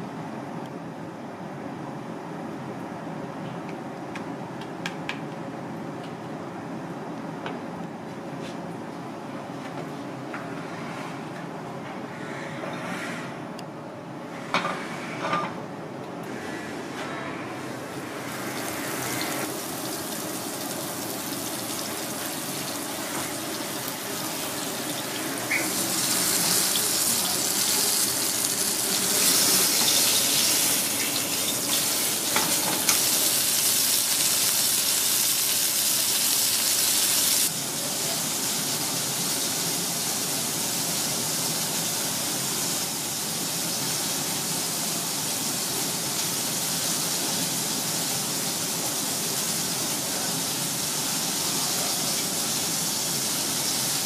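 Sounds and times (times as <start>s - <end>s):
fish frying in hot oil: 18.5s - 54.0s.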